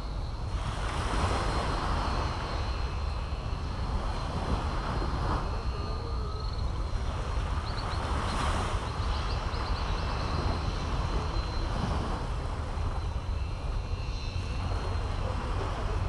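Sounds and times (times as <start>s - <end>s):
surf washing on beach: 0.0s - 16.0s
bird chirping: 7.6s - 10.8s.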